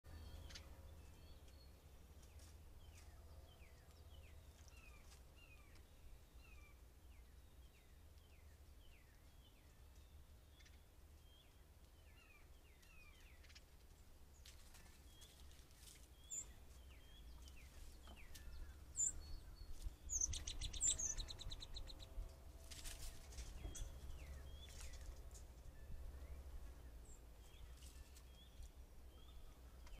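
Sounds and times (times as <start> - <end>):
birds chirping: 0.1 - 30.0
faint low rumble: 0.1 - 30.0.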